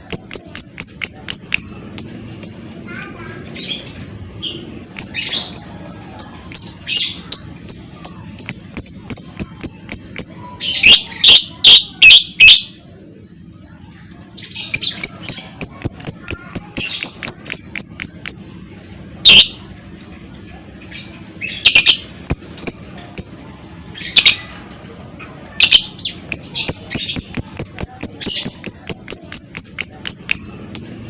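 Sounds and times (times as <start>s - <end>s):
bird chirping: 0.0s - 12.8s, 14.4s - 18.5s, 25.6s - 31.0s.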